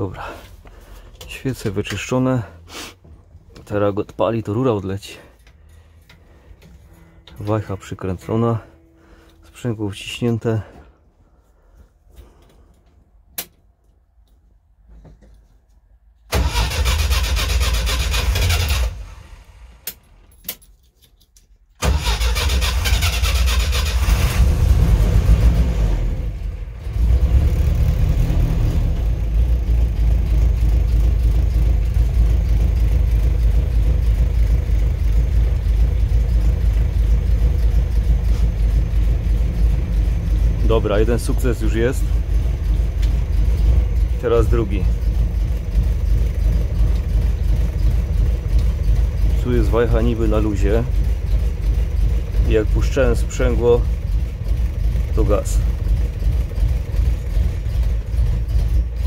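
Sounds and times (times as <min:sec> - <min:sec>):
engine starting and running: 0:00.0 - 0:11.0, 0:16.2 - 0:20.7, 0:21.8 - 0:59.0.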